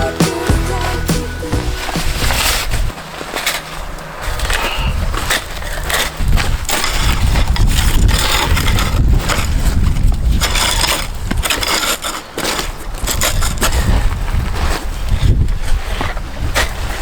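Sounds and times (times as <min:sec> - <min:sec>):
rustling and crackling bursts: 0:00.0 - 0:17.0
gusting wind on microphone: 0:01.7 - 0:03.0, 0:04.1 - 0:11.6, 0:12.7 - 0:17.0.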